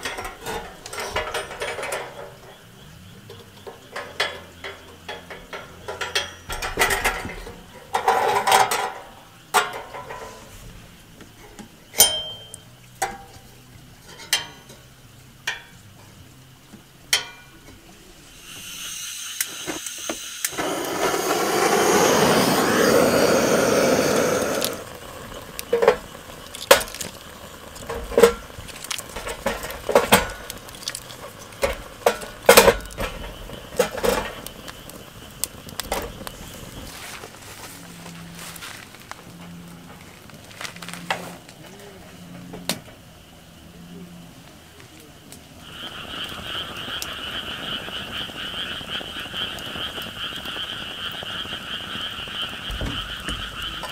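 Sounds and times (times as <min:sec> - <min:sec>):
metal cookware clinking: 0:12.0 - 0:13.4, 0:14.0 - 0:14.9, 0:17.2 - 0:17.6
loud rushing hiss: 0:18.0 - 0:29.2.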